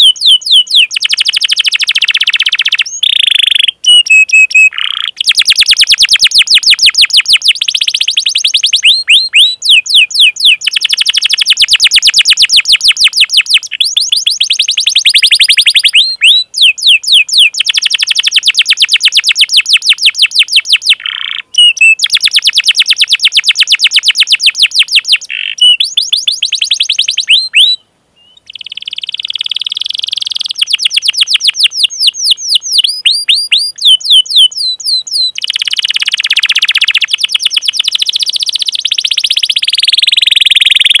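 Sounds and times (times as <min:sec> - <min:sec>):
canary singing trills: 0:00.0 - 0:41.0.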